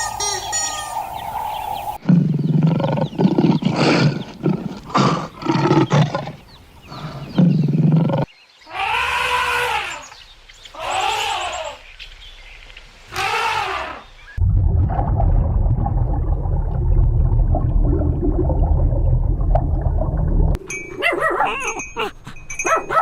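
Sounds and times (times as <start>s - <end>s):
drawn-out rising and falling calls: 0.0s - 8.0s.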